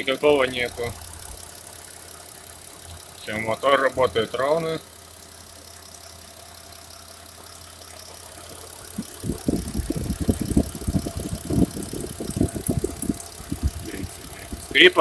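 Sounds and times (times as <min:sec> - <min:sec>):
car engine idling: 0:00.0 - 0:15.0
irregular low thumps: 0:08.9 - 0:14.8.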